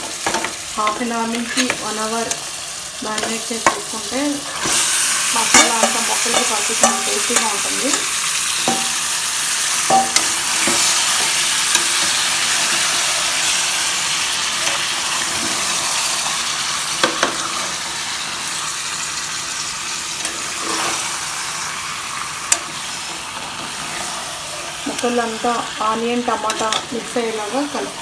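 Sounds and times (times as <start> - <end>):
chicken sizzling in hot oil: 0.0 - 28.0
metal spatula stirring: 5.4 - 12.8.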